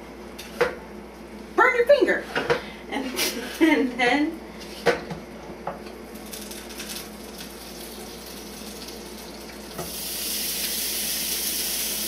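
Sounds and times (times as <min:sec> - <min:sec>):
griddle sizzling: 0:06.1 - 0:12.0.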